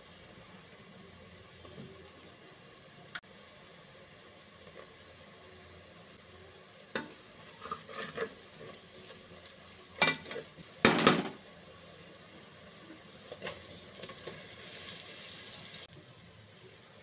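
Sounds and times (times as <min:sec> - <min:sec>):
masala sizzling: 0:00.0 - 0:17.0
tomatoes dropped into hot oil: 0:06.9 - 0:08.4, 0:10.0 - 0:11.5, 0:13.3 - 0:16.0
spatula stirring in pot: 0:06.9 - 0:10.8.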